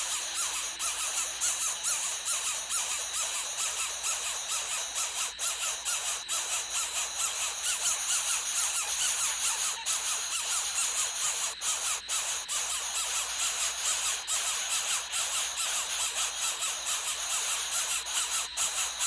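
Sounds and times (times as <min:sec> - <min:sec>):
birds chirping: 0:00.0 - 0:11.5
steady high-pitched hiss: 0:00.0 - 0:19.0.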